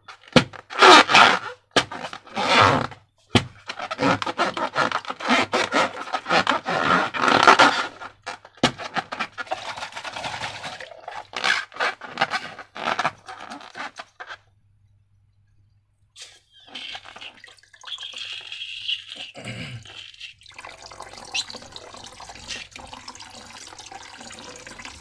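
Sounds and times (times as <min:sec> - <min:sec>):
slime and rubber squeezed: 0:00.3 - 0:14.4, 0:16.2 - 0:19.3.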